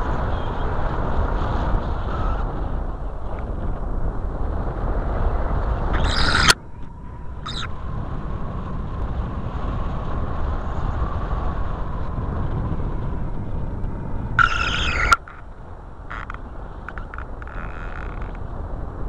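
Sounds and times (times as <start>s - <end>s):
wind rumbling: 0.0s - 19.0s
faint thin whistle: 2.0s - 2.4s, 14.4s - 15.3s
short screeching bursts: 6.0s - 6.6s, 7.4s - 7.7s, 14.4s - 18.4s.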